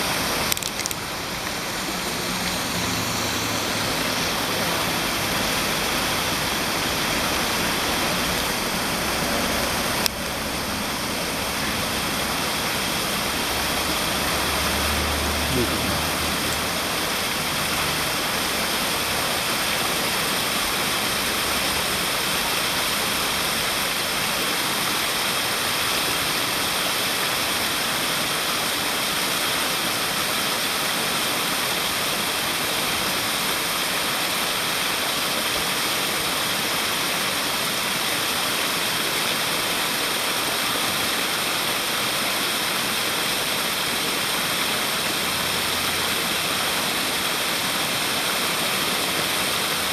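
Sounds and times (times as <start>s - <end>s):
thin high tone: 0.0s - 9.8s
water rushing: 0.0s - 49.9s.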